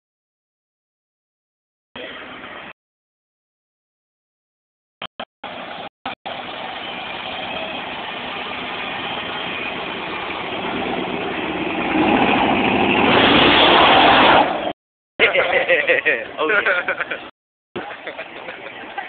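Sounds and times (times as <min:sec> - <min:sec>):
car engine running: 0:05.4 - 0:14.6.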